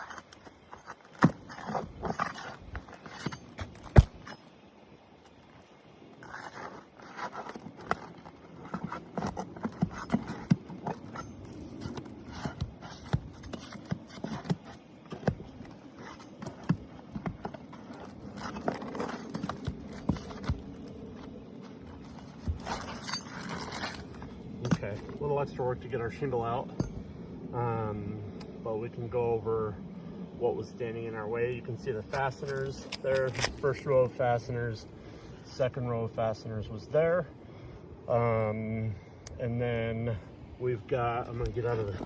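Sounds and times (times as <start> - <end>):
shingle sealant strips tearing: 21.6 - 24.2, 32.5 - 33.6.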